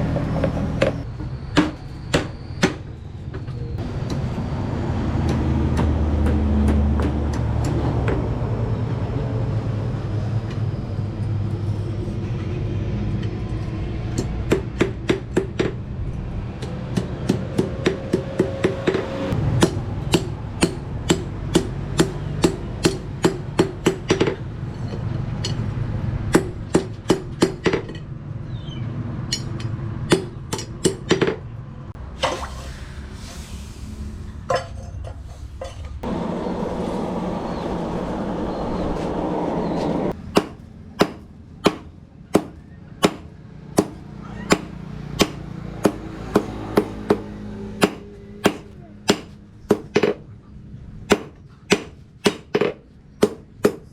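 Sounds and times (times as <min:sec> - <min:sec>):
hammer striking metal on anvil: 0:40.2 - 0:50.2, 0:51.1 - 0:53.9.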